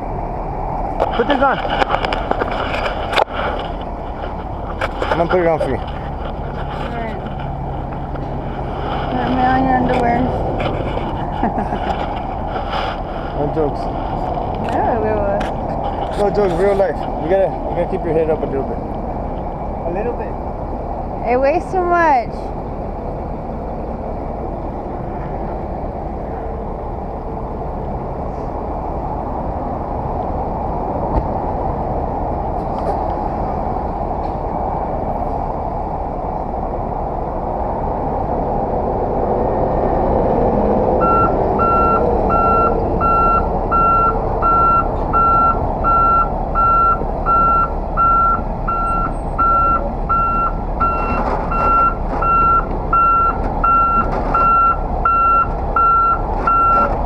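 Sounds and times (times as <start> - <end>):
heavy truck engine running: 0.0 - 57.0
reversing alarm beeping: 41.0 - 56.9.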